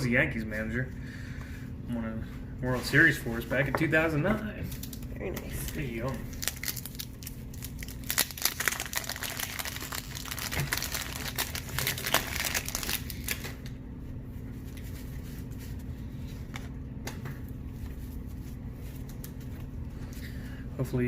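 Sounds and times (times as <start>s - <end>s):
wrapper crinkling: 4.7s - 13.6s
card pack wrapper tearing: 5.6s - 13.5s.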